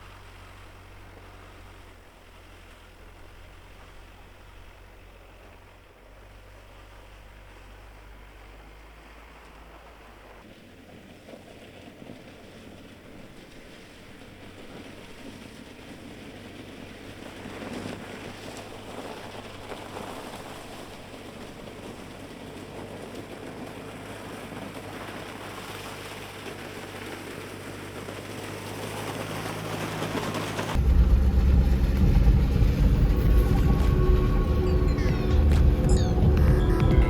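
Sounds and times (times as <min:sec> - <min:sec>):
van engine hum: 0:00.0 - 0:37.0
loud background music: 0:30.8 - 0:37.0.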